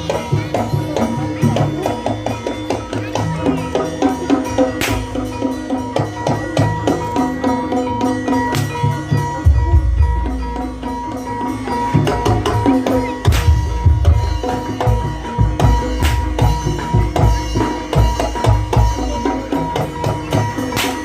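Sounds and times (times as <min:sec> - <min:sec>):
hand drums beating fast pattern: 0:00.0 - 0:21.0
ringing metallophone notes: 0:00.0 - 0:21.0.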